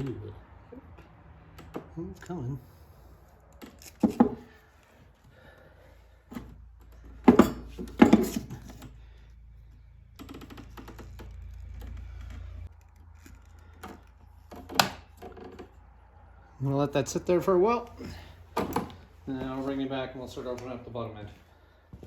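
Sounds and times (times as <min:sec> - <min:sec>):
knocks and clunks of engine handling: 0:00.9 - 0:02.4, 0:03.4 - 0:05.5, 0:06.1 - 0:15.9, 0:18.0 - 0:19.8.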